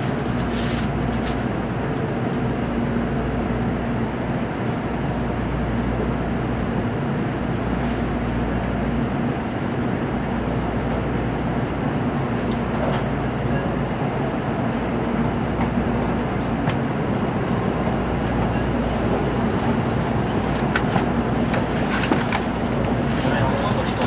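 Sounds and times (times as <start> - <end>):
train running inside passenger car: 0.0 - 24.0.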